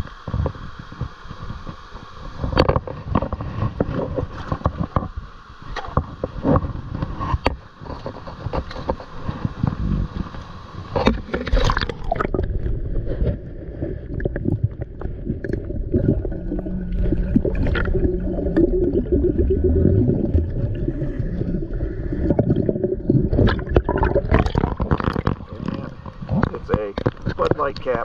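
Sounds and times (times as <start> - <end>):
underwater gurgling: 0.0 - 28.0
knocks and scrapes: 2.4 - 5.2, 5.8 - 10.3, 23.2 - 28.0.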